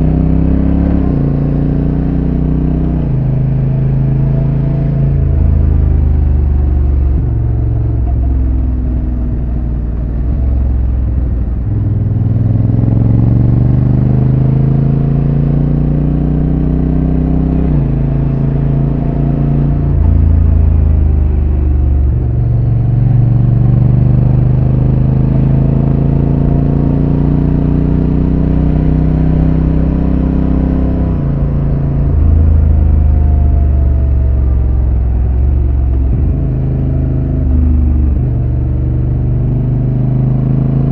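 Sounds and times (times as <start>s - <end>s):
motorcycle engine revving: 9.0s - 40.9s.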